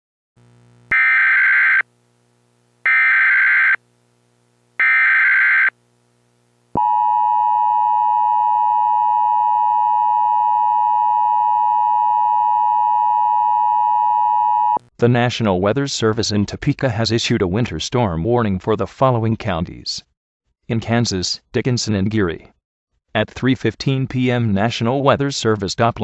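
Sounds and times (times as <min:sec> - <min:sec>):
long steady alert tone: 0:00.9 - 0:01.8, 0:02.9 - 0:03.8, 0:04.8 - 0:05.7
screeching digital data bursts: 0:00.9 - 0:01.8, 0:02.9 - 0:03.8.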